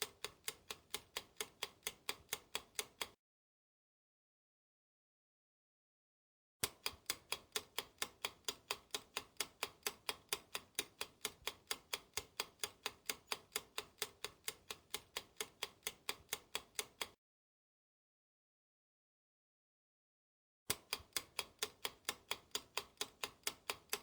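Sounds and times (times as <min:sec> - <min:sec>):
fast clock ticking: 0:00.0 - 0:03.2, 0:06.6 - 0:17.2, 0:20.7 - 0:24.0.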